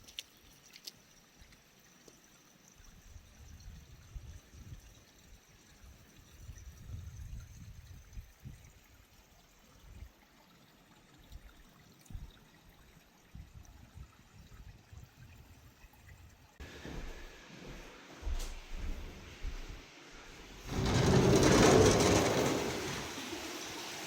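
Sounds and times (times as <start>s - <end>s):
faint running water: 0.0s - 24.0s
low rumbling: 20.6s - 23.2s.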